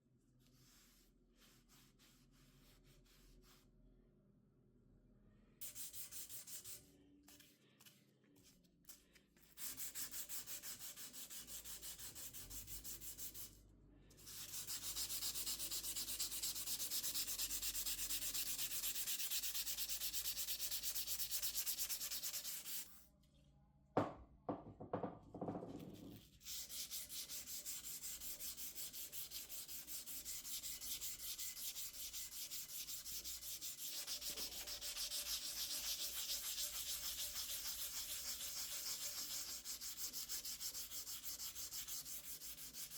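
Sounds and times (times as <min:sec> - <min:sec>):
hand sanding rusty metal: 0:14.2 - 0:23.0, 0:26.4 - 0:42.9.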